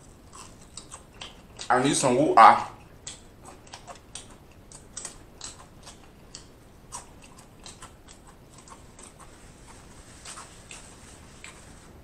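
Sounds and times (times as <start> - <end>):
person chewing crispy food: 0.0 - 1.8, 2.8 - 11.7
wet mouth clicks: 2.9 - 9.3.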